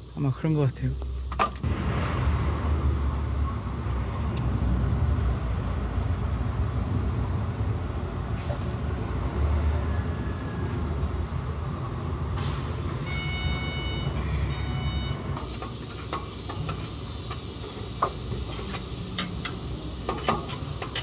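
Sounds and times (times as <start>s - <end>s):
diesel truck engine rumbling: 0.0s - 21.0s
sharp clicks and knocks: 15.4s - 21.0s.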